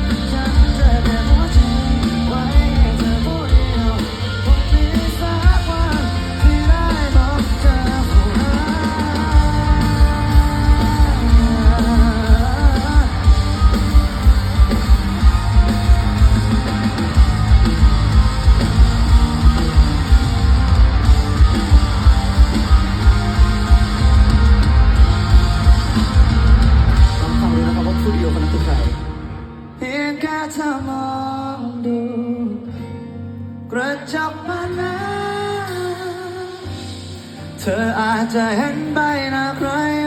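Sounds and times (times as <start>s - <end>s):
steady drum beat: 0.0s - 29.2s
live rock band playing: 0.0s - 30.3s, 34.8s - 40.0s
wavering lead melody: 4.4s - 30.0s.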